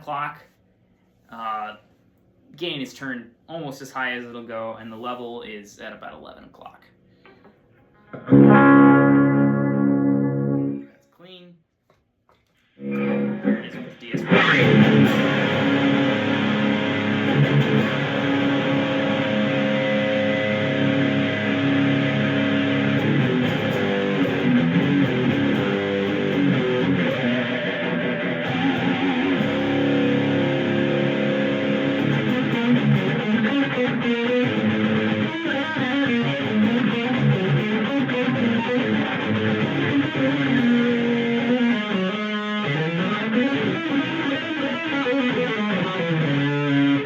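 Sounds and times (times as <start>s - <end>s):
distorted electric guitar riffs: 8.0s - 10.9s, 12.8s - 47.0s.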